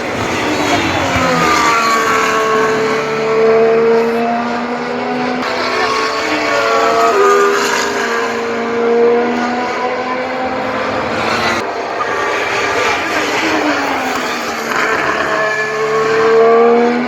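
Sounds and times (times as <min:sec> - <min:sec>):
racing car engine: 0:00.0 - 0:17.0.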